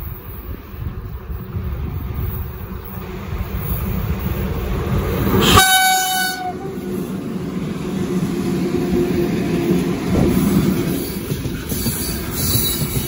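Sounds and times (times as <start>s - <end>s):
train wagons rumbling: 0.0s - 13.0s
locomotive horn blast: 5.4s - 7.0s.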